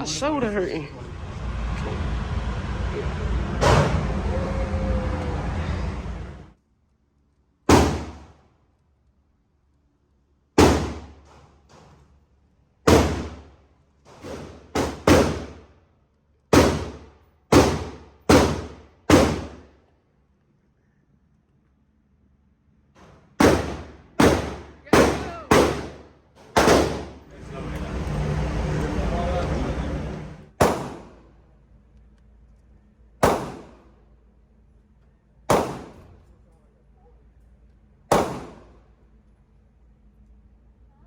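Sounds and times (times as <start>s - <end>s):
steady noise: 0.0s - 6.6s, 27.1s - 30.6s
loud gunshots with ringing tail: 7.7s - 8.3s, 10.6s - 11.2s, 12.9s - 13.5s, 14.4s - 15.6s, 16.5s - 19.6s, 23.4s - 27.2s, 30.6s - 31.2s, 33.2s - 33.8s, 35.5s - 36.1s, 38.1s - 38.7s
faint distant gunshots: 10.6s - 11.2s, 14.2s - 15.7s, 16.5s - 19.7s, 23.4s - 27.3s, 30.6s - 31.3s, 33.2s - 34.0s, 35.5s - 36.2s, 38.1s - 38.8s.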